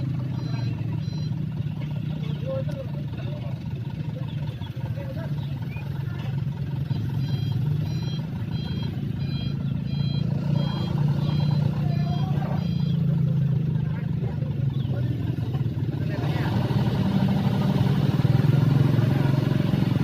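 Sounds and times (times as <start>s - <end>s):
reversing alarm beeping: 0.0s - 1.6s, 6.8s - 13.7s
truck engine running: 0.0s - 20.0s.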